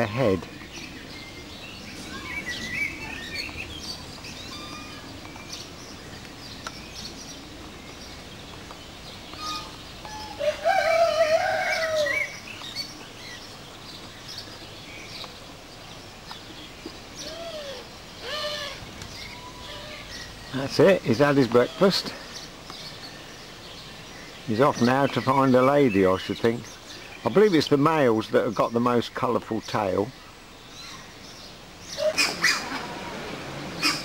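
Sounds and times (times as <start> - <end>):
birds chirping and twittering: 0.0 - 34.0
loud low bird call: 1.9 - 5.7, 9.3 - 12.5, 17.2 - 20.7, 31.9 - 34.0.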